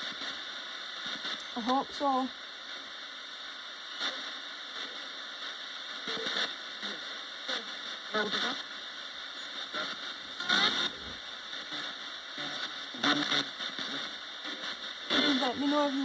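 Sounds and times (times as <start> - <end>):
radio static hiss: 0.0 - 16.0
broadcast voice fragments: 12.9 - 16.0.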